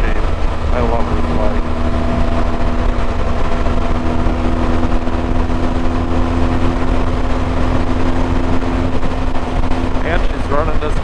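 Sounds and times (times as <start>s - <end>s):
motorcycle engine hum: 0.0s - 11.0s
road and wind noise: 0.0s - 11.0s.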